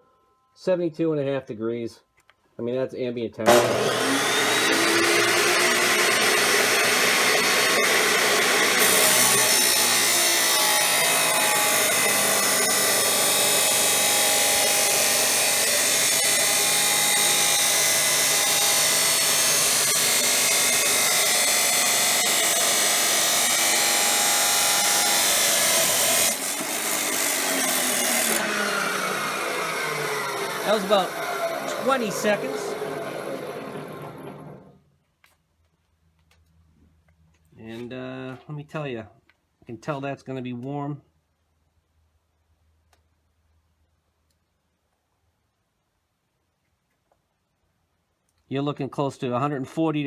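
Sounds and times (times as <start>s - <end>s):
chop saw grinding through steel: 3.5s - 34.7s
saw motor whine spinning down: 3.5s - 34.7s.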